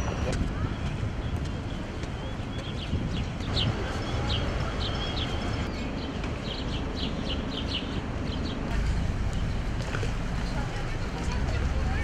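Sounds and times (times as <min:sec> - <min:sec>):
small birds chirping: 0:00.0 - 0:09.8
low outdoor rumble: 0:08.2 - 0:12.0.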